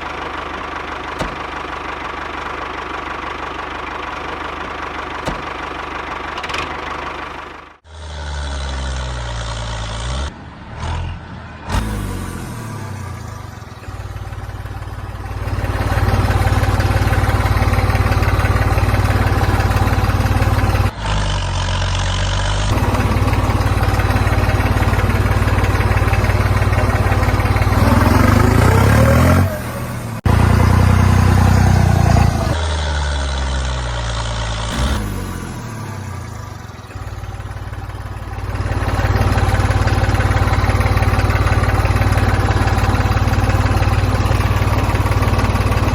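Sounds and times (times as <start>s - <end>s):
engine idling and revving: 0.0s - 45.9s.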